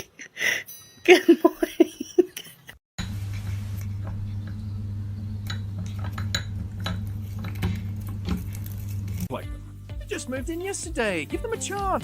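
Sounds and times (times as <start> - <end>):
steady low hum: 3.0 - 10.0.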